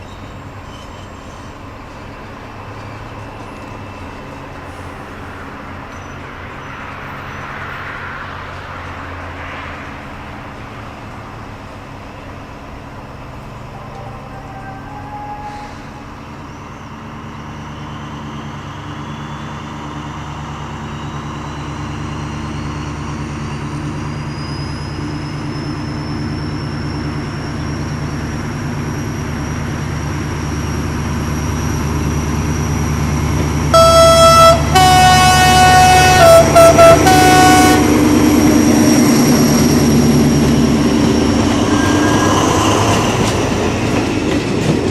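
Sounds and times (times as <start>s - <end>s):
diesel locomotive running: 0.0s - 44.9s
whine over engine: 12.2s - 44.8s
two-tone train horn: 13.6s - 16.2s, 33.7s - 38.4s.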